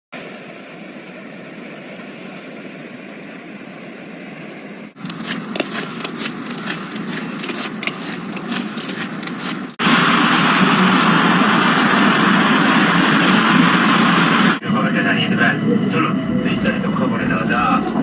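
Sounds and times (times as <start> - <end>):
steady outdoor noise: 0.1 - 18.0
crackles and clicks: 5.0 - 14.6.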